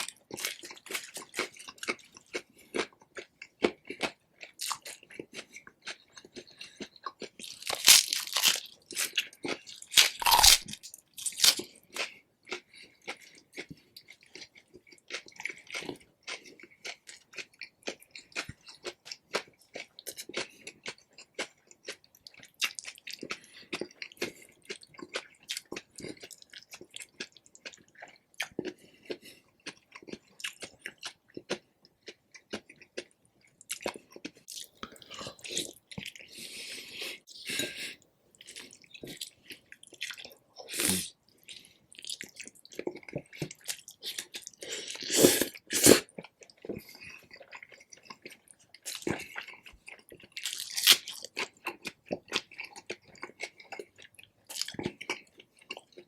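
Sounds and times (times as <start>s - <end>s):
wet chewing mouth sounds: 0.0s - 56.0s
crunchy bites: 7.2s - 12.6s.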